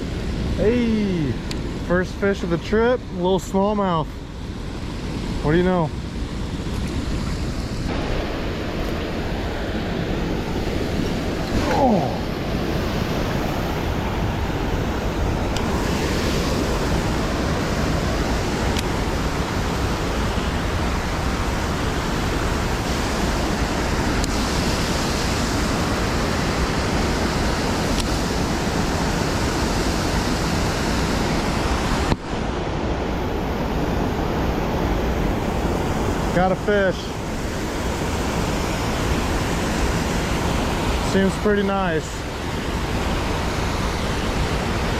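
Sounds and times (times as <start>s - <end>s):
fast-flowing water roaring: 0.0s - 44.9s
man exclaiming: 11.6s - 12.3s.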